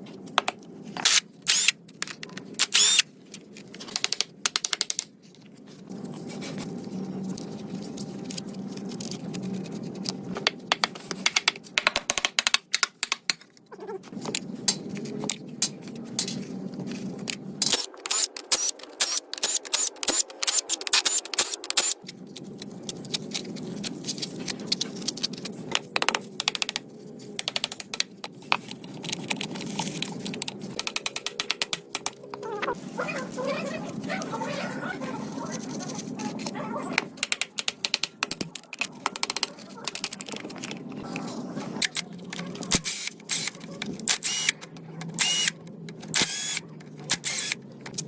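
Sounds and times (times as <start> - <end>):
hand tools clicking and tapping: 3.8 - 5.1, 8.4 - 16.4, 17.2 - 32.7, 36.3 - 41.2.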